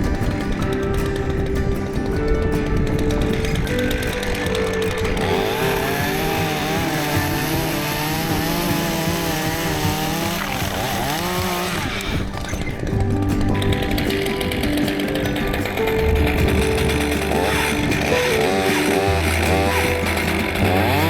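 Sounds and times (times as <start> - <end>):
background music: 0.0 - 21.0
chainsaw cutting wood: 3.7 - 12.5, 15.4 - 21.0.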